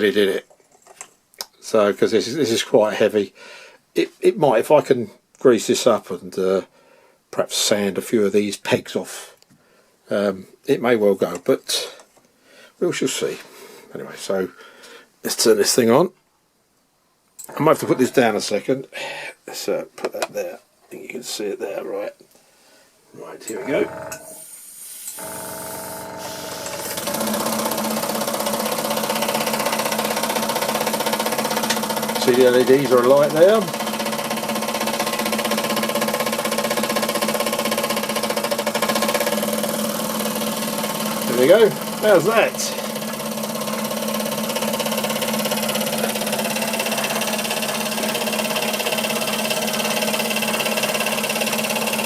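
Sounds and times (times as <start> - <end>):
model steam engine running: 25.2 - 52.0.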